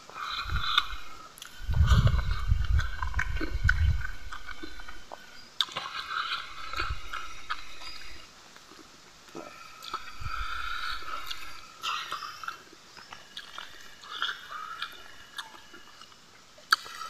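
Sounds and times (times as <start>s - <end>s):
fingers working food on a leaf: 0.0s - 17.0s
man chewing food: 0.0s - 17.0s
wet mouth clicks and smacks: 9.8s - 12.2s, 13.1s - 17.0s.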